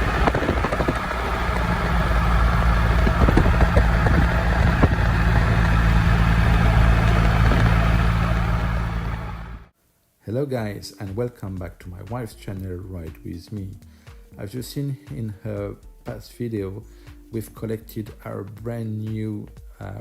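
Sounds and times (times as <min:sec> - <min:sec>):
motorcycle engine running steadily: 0:00.0 - 0:09.7.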